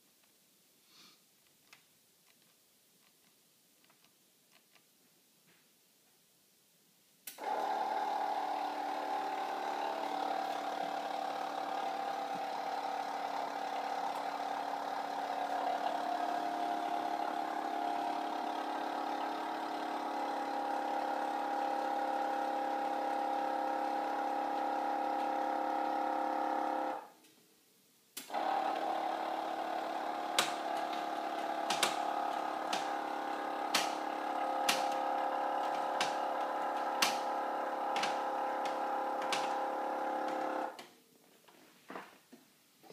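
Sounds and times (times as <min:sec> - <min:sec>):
atv engine running: 0:28.3 - 0:40.7.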